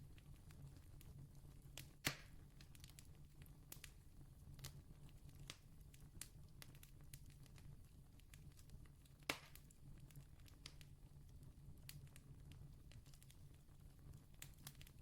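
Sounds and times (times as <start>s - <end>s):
campfire crackling: 0.1s - 4.0s, 4.6s - 15.0s
burning wood popping: 1.8s - 4.0s, 8.3s - 10.9s, 11.8s - 15.0s.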